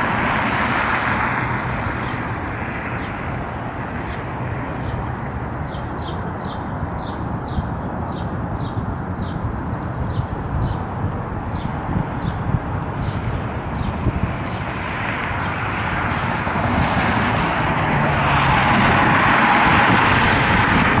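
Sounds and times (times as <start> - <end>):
wind rumble: 8.8 - 21.0.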